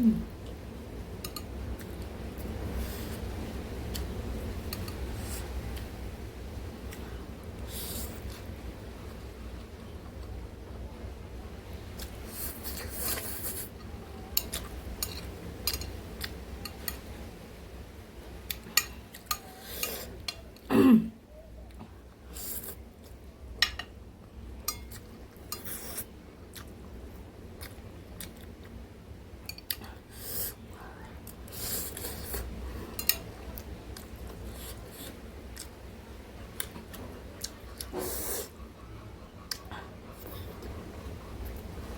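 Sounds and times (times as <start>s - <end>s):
mouth or throat sound: 0.0s - 0.3s.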